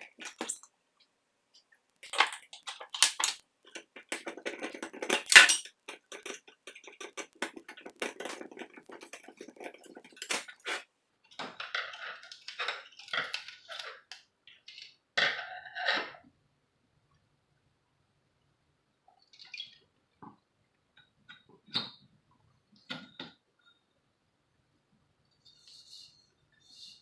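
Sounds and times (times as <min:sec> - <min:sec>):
clock parts clicking and clattering: 0:00.0 - 0:00.6, 0:02.0 - 0:10.8.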